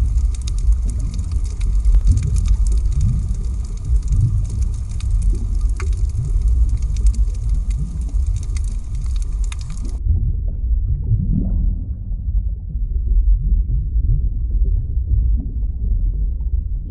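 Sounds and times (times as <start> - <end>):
crackling clicks: 0.0 - 10.0
deep underwater rumble: 0.0 - 16.9.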